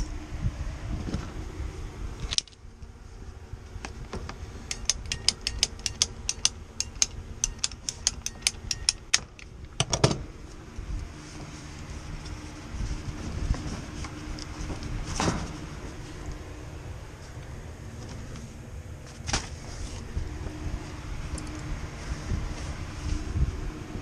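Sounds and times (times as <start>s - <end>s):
sharp metallic clicks: 4.7s - 9.9s.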